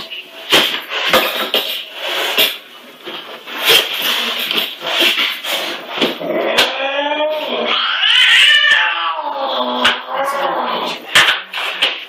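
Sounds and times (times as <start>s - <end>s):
pet animal wavering cry: 6.4s - 11.0s.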